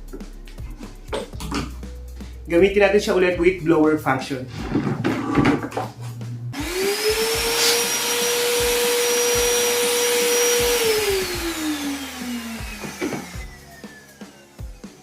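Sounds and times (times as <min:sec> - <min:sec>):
vacuum blower motor whine: 0:06.6 - 0:15.0.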